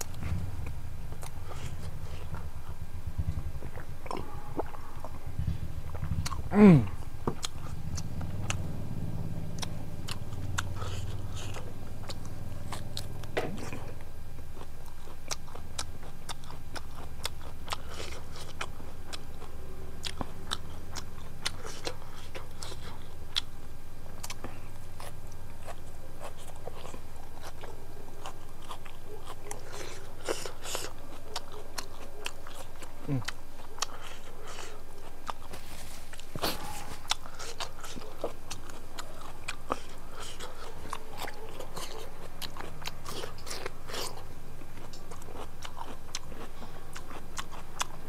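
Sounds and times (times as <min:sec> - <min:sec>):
person chewing and biting food: 0:00.0 - 0:23.5, 0:24.1 - 0:48.0
low steady hum: 0:00.0 - 0:48.0.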